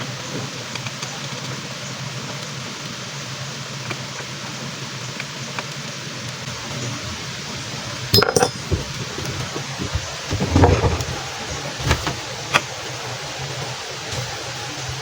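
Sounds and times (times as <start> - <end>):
hard objects clinking and knocking: 8.1 - 12.3.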